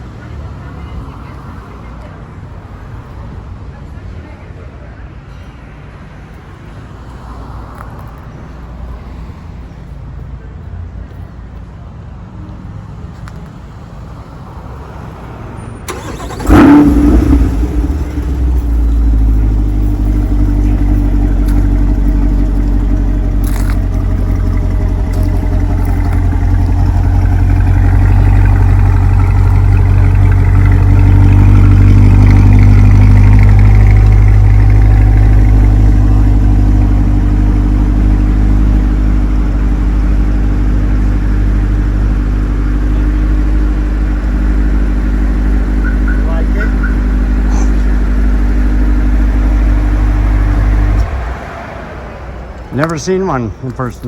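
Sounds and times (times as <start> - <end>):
car engine starting and idling: 15.8 - 54.0.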